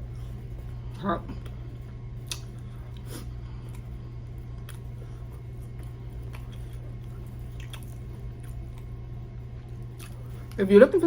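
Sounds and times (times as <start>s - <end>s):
steady low hum: 0.0s - 11.0s
person chewing crispy food: 2.2s - 10.6s.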